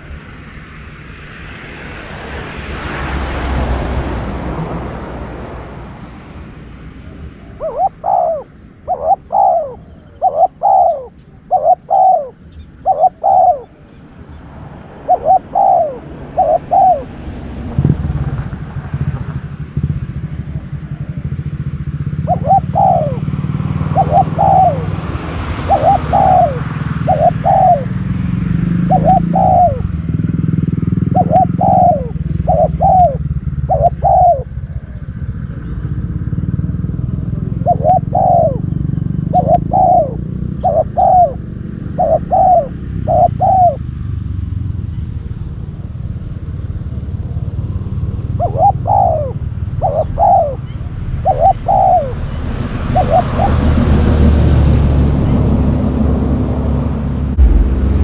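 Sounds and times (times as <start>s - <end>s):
low engine drone: 0.0s - 58.0s
vehicle passing: 0.0s - 58.0s
dove cooing: 7.0s - 13.9s, 14.6s - 17.6s, 19.0s - 43.9s, 46.9s - 54.5s.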